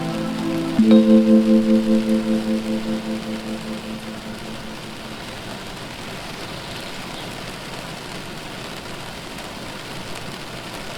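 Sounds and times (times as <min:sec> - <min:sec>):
low gong-like tone: 0:00.0 - 0:05.5
steady rain falling: 0:00.0 - 0:10.9.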